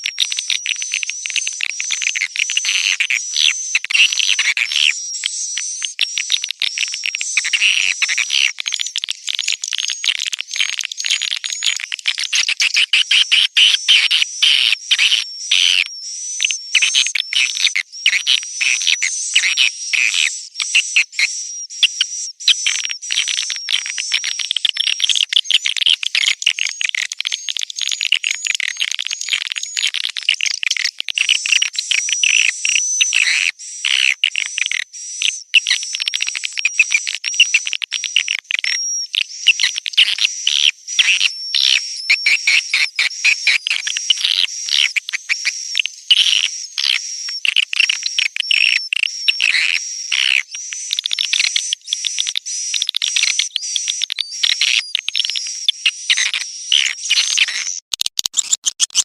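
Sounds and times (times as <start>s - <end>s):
repeating clicking pattern: 56.2s - 59.0s.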